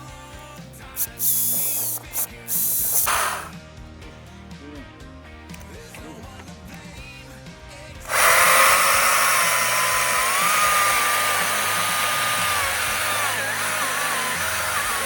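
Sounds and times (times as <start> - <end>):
electric chainsaw whining: 1.0 - 3.5, 8.1 - 15.0.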